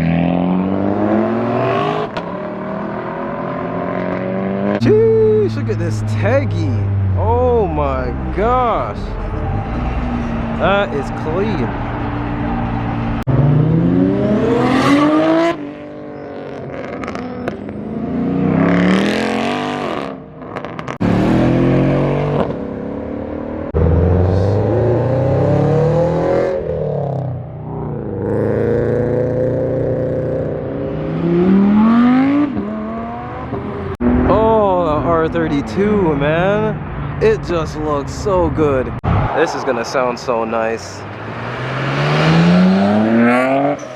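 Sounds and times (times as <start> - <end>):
car engines revving: 0.0 - 43.9.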